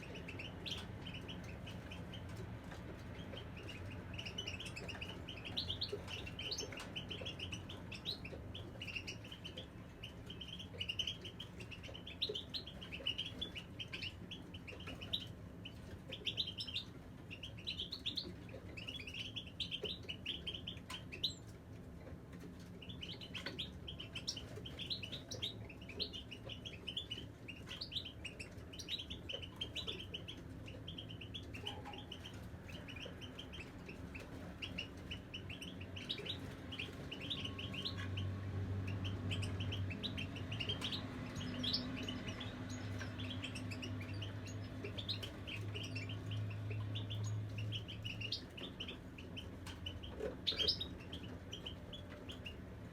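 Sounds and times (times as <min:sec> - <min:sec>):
goldfinches twittering: 0:22.8 - 0:52.6.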